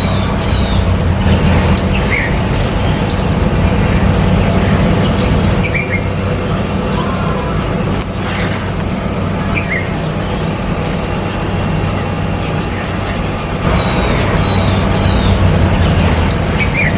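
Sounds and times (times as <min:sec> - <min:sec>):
high bird chirps: 0:00.0 - 0:08.7, 0:12.4 - 0:16.9
low mechanical hum: 0:00.0 - 0:16.9.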